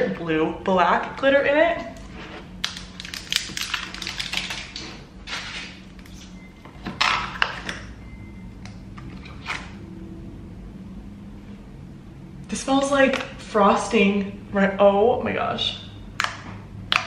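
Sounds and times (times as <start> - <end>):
slime clicking and crackling: 2.6 - 5.0.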